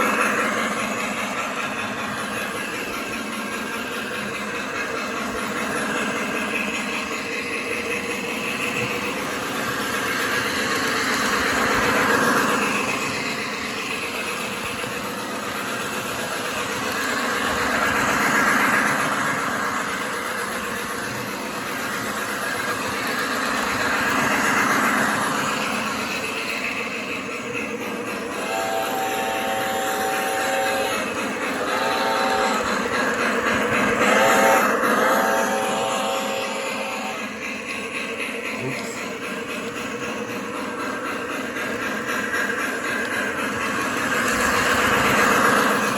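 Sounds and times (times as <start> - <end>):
model train running: 0.0 - 45.9.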